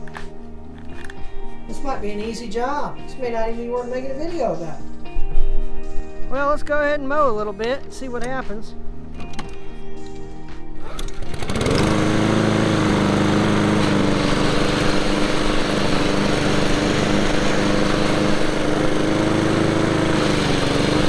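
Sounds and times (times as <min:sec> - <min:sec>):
lawn mower engine running: 0:10.8 - 0:21.0.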